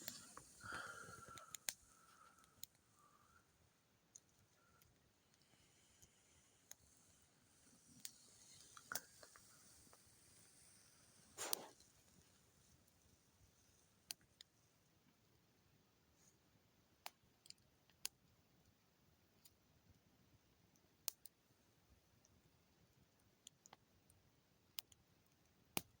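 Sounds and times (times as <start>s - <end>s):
campfire crackling and popping: 0.0s - 2.8s.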